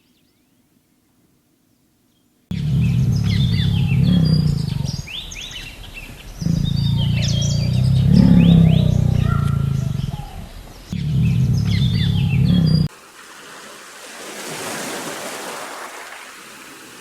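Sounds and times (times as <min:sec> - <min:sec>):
small birds chirping: 0:00.0 - 0:12.9
loud low animal calls: 0:02.5 - 0:12.9.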